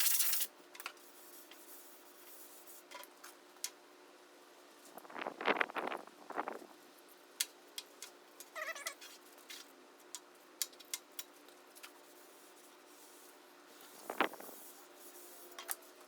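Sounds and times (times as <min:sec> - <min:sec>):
cat meowing: 0:08.6 - 0:09.0.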